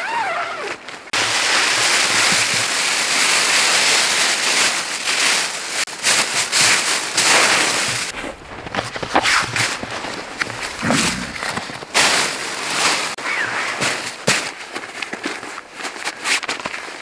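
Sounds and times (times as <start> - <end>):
zipper pull: 0.0 - 0.8, 7.3 - 12.0.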